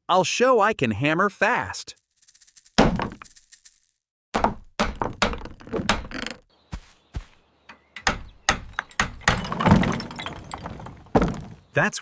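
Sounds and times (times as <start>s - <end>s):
hammer knocking on wood: 4.4s - 6.2s, 8.0s - 10.0s.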